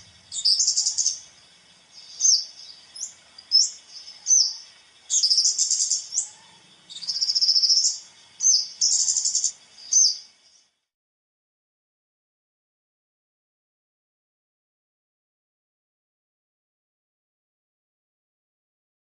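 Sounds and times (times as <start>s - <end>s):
songbird chirps and buzzy trills: 0.0s - 10.9s.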